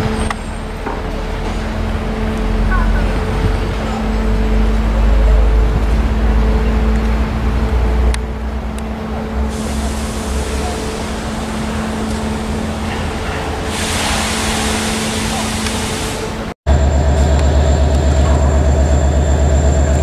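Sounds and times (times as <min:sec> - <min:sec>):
train rumbling with droning hum: 0:00.0 - 0:20.0
bright hiss: 0:09.5 - 0:12.2, 0:13.6 - 0:16.5.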